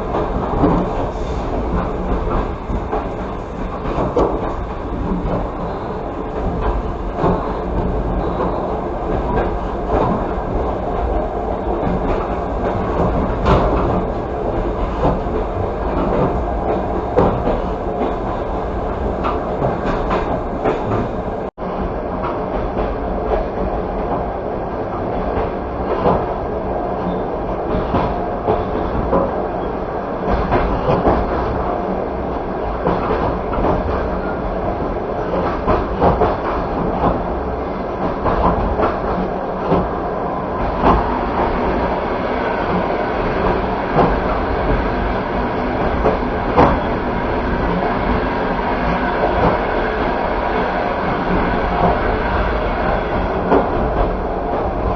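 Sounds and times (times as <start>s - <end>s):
wheels clacking over rail: 0.0s - 21.5s
train carriage rolling on track: 0.0s - 54.9s.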